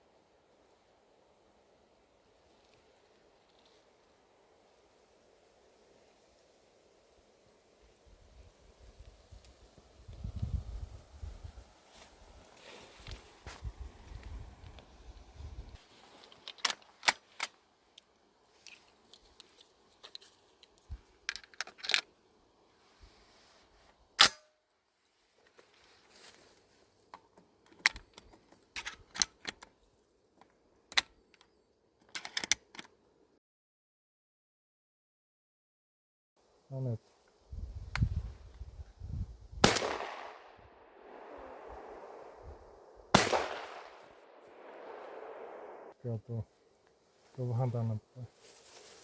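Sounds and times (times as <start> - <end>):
shotgun shot with echo: 39.6 - 42.3, 43.1 - 45.9.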